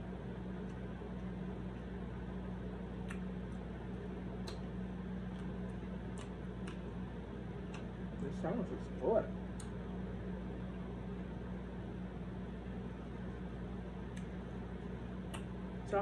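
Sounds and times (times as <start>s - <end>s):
steady low hum: 0.0s - 16.0s
person chewing food: 3.0s - 7.0s
wet mouth clicks: 4.4s - 4.7s.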